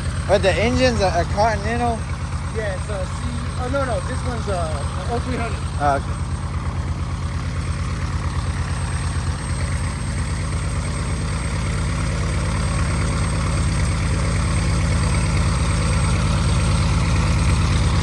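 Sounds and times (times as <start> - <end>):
propeller plane engine running: 0.0 - 18.0.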